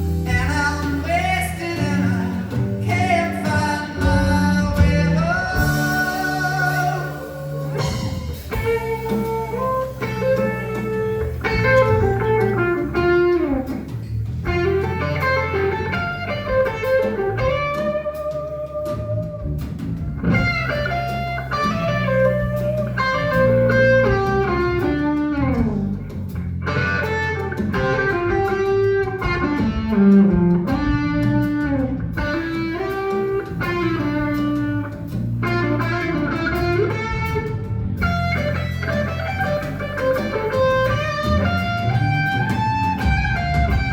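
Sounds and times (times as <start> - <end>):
blues-rock band playing: 0.0 - 43.9
electric guitar lead line: 0.0 - 43.9.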